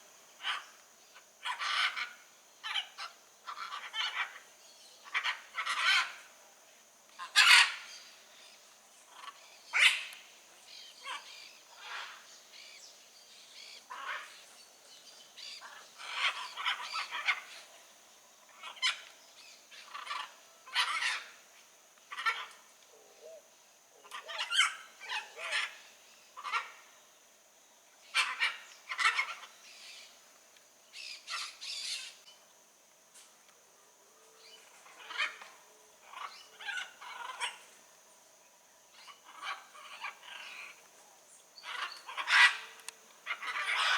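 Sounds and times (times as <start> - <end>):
macaws squawking: 41.7 - 43.9.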